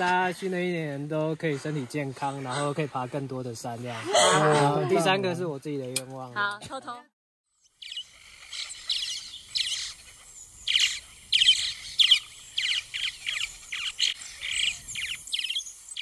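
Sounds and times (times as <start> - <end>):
songbird singing: 7.6 - 16.0.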